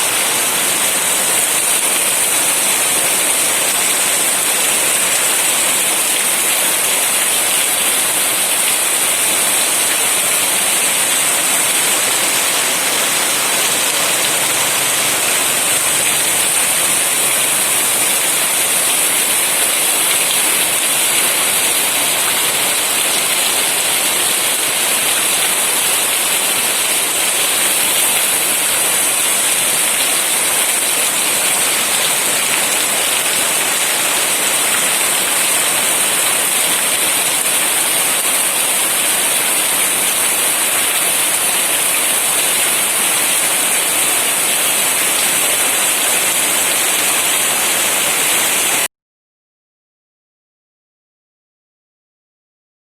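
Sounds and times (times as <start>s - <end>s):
heavy rain falling: 0.0s - 48.9s.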